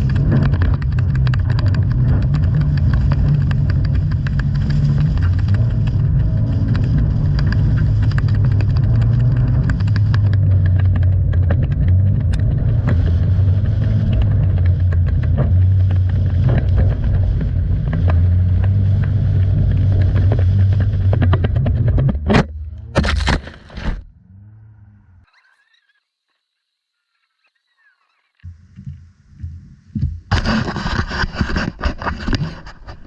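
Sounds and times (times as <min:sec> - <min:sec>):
sharp ticks and knocks: 0:00.0 - 0:17.2
car engine drone: 0:00.0 - 0:30.5.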